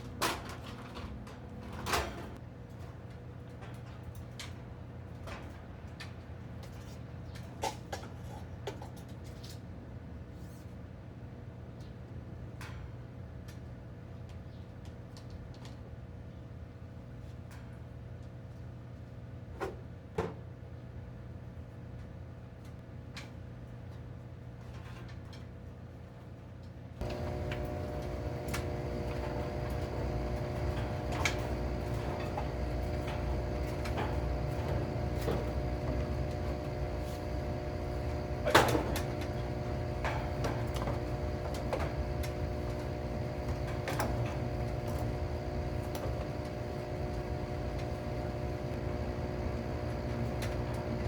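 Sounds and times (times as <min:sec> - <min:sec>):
machine hum: 0:27.0 - 0:51.0.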